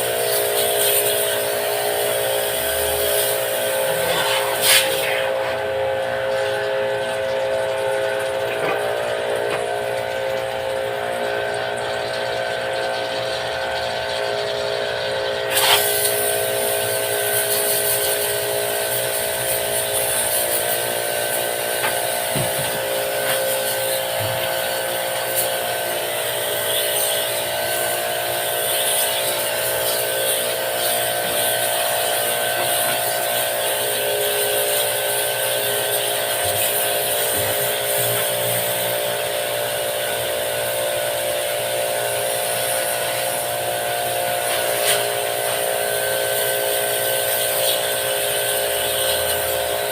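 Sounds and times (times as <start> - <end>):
water jet spraying hiss: 0.0 - 5.6, 15.5 - 18.3
pressure washer pump whining: 0.0 - 49.9.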